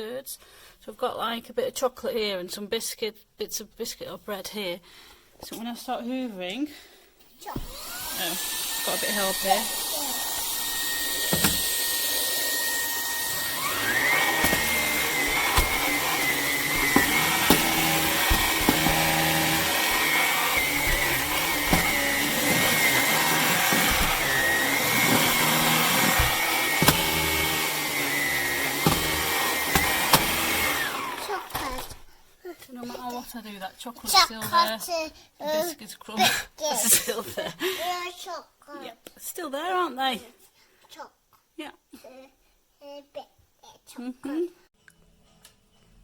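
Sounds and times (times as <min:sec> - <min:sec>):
cordless vacuum motor whine: 0:07.6 - 0:32.0
vacuum floor head clicks and knocks: 0:10.4 - 0:12.0, 0:13.1 - 0:32.0.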